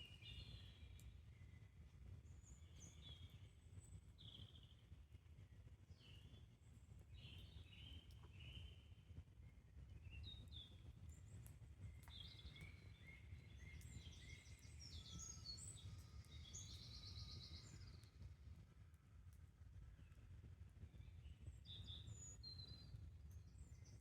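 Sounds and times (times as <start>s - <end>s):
campfire crackles: 0.1s - 3.1s, 10.6s - 22.1s.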